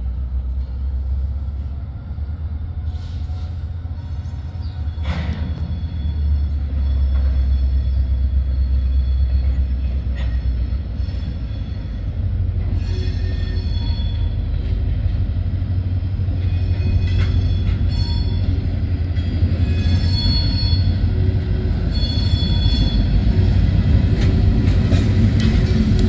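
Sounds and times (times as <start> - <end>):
train low rumble: 0.0 - 26.0
high-pitched wheel squeals: 3.0 - 12.1, 12.7 - 14.6, 16.3 - 21.1, 21.8 - 23.2.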